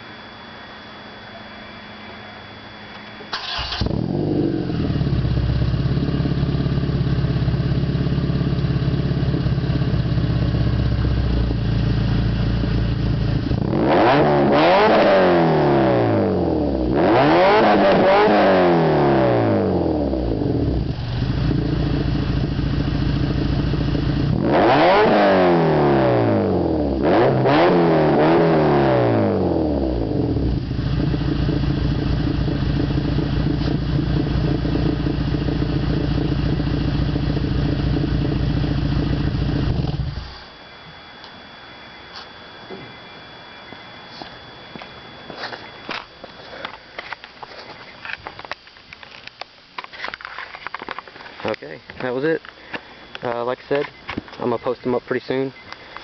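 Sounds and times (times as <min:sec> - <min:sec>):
car engine starting and idling: 0:02.9 - 0:40.7
car engine revving: 0:03.3 - 0:40.4.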